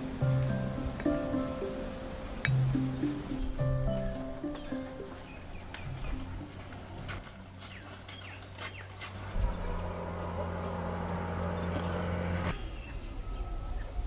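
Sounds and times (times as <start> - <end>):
insects chirping: 0.0 - 7.8, 9.2 - 14.0
birds chirping: 0.0 - 14.0
steady low hum: 9.2 - 12.6
high insect-like tone: 9.4 - 12.5.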